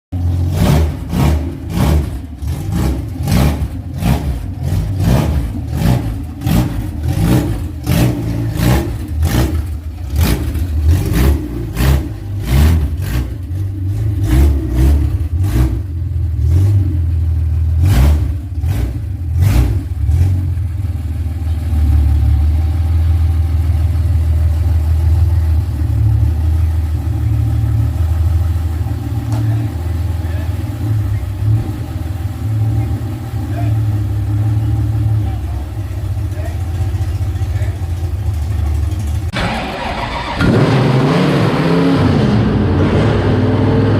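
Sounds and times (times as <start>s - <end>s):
car engine revving and idling: 0.1s - 43.9s.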